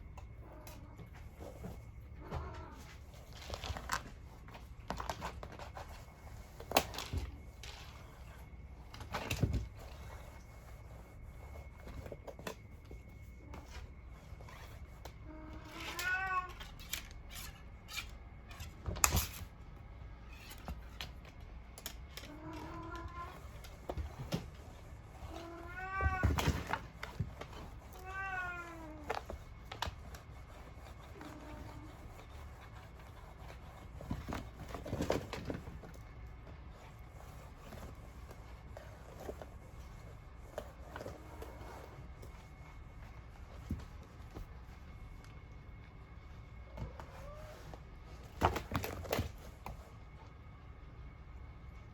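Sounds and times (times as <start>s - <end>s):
cat meowing: 15.3s - 16.8s, 25.3s - 26.7s, 27.9s - 29.1s.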